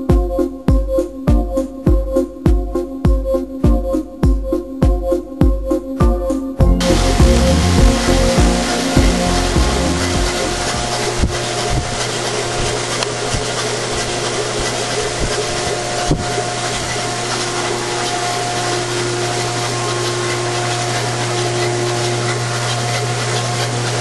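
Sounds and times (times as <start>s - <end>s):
car engine running: 6.8s - 24.0s.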